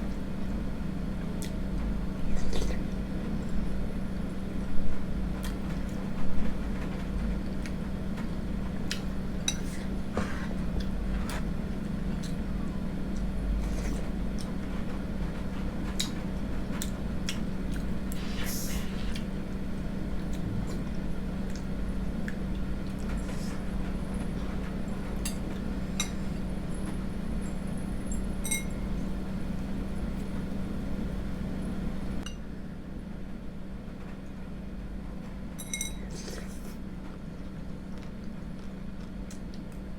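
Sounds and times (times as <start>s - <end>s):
steady low hum: 0.0s - 39.9s
spoon clinking against bowl: 35.6s - 36.0s.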